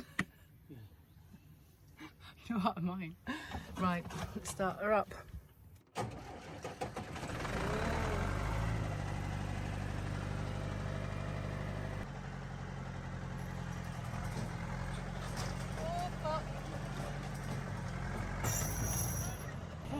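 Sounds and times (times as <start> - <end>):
tractor engine starting and idling: 5.9 - 19.9.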